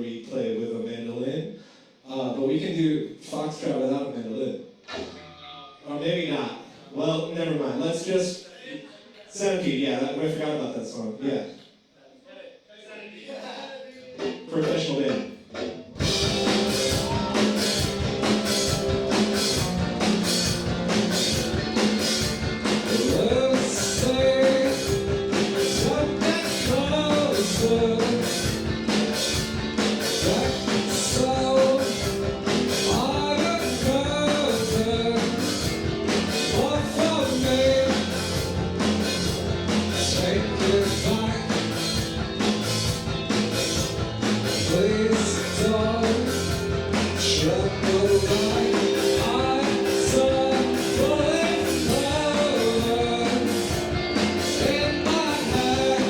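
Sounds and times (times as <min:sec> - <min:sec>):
drum kit beat: 0:14.1 - 0:56.0
rock band playing: 0:14.6 - 0:56.0
person singing: 0:16.1 - 0:21.2, 0:22.8 - 0:28.9, 0:30.1 - 0:42.1, 0:44.4 - 0:56.0.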